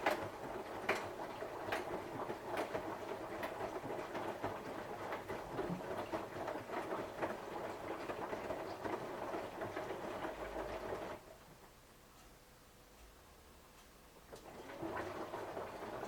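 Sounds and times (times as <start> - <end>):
washing machine drum rumbling: 0.0 - 11.2.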